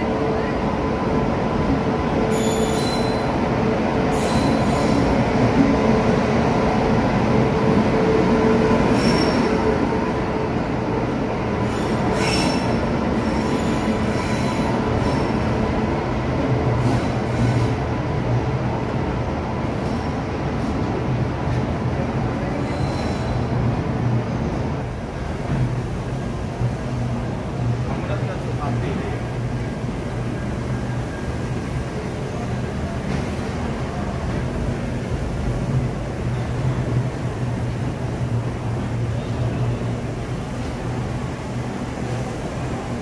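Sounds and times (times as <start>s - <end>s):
train wheels rumbling on rail: 0.0s - 43.0s
wheel and brake squeals: 2.3s - 3.4s, 4.1s - 5.0s, 8.9s - 9.6s, 11.7s - 15.3s, 22.6s - 23.4s.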